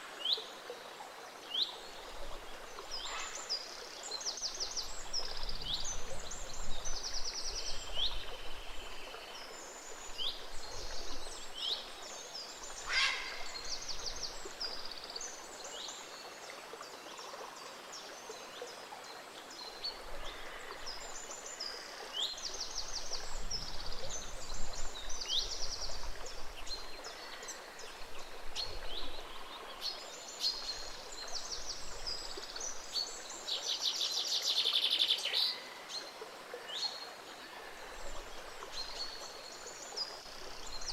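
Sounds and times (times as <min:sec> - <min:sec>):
stream rushing gently: 0:00.0 - 0:40.9
songbirds chirping and trilling: 0:01.6 - 0:16.4.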